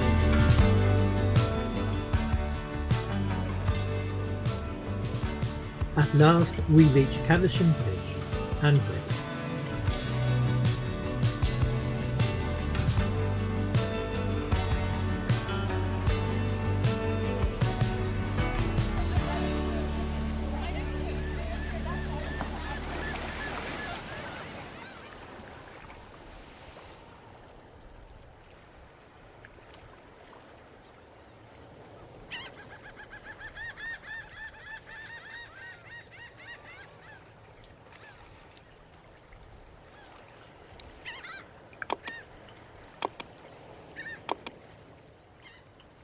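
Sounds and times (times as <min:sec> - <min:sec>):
background music: 0:00.0 - 0:23.3
goose honking: 0:20.6 - 0:24.5.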